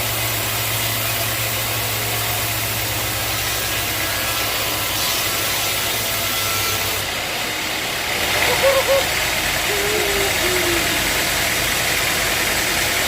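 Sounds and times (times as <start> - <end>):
wash of machinery noise: 0.0 - 13.0
pulsing engine hum: 7.0 - 13.0.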